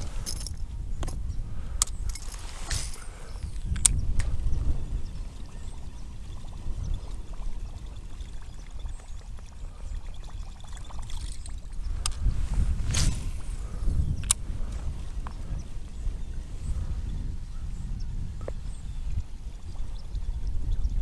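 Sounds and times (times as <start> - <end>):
water pouring and trickling: 2.1 - 13.8.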